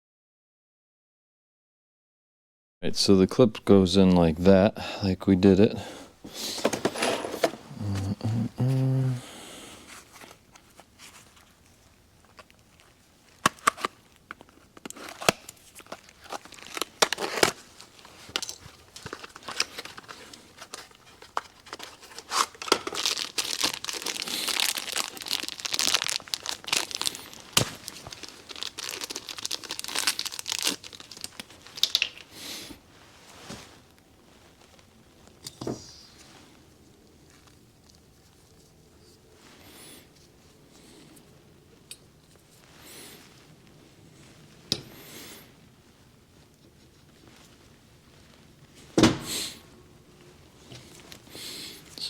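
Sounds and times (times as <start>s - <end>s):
plastic packaging crinkling: 10.2s - 32.4s.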